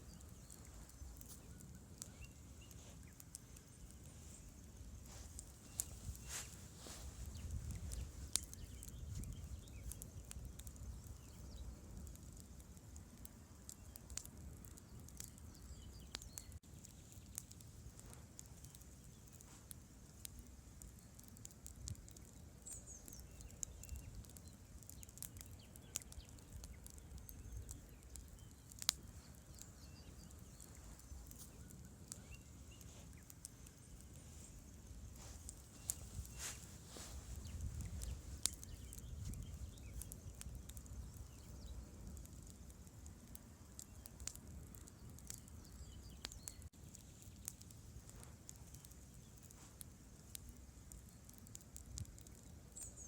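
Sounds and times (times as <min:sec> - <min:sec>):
faint low rumble: 0:00.0 - 0:13.3, 0:26.0 - 0:43.1
campfire crackling: 0:00.0 - 0:53.0.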